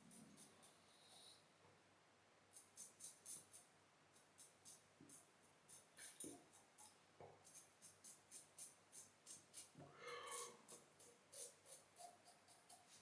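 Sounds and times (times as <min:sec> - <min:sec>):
razor scraping stubble: 0:08.0 - 0:12.9.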